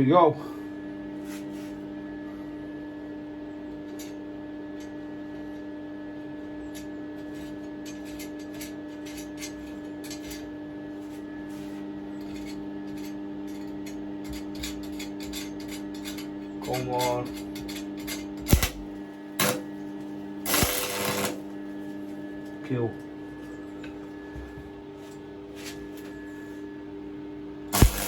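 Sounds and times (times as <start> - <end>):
steady hum with tones: 18.5 - 26.7, 27.7 - 28.0.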